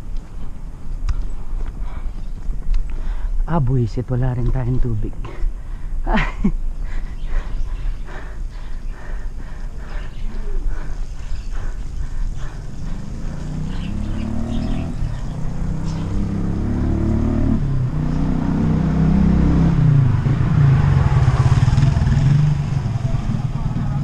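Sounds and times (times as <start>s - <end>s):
vehicle engine running: 8.9s - 24.0s.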